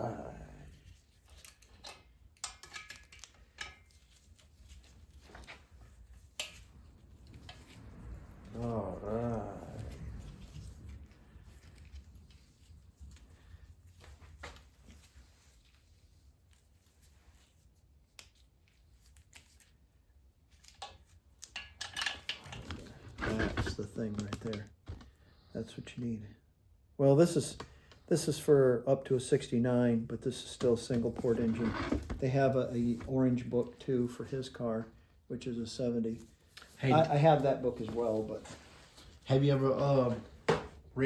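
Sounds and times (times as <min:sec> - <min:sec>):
light clicks of small parts handled: 0:01.1 - 0:07.6
metal tools clinking: 0:01.2 - 0:05.6.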